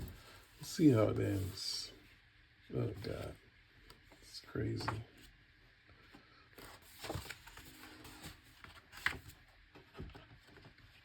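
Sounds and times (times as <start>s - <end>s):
paper pages rustling: 6.6s - 11.0s.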